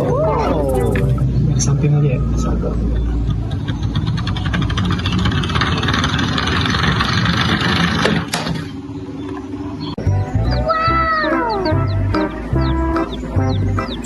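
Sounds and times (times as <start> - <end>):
toy vehicle rattle and whirr: 3.4 - 8.7.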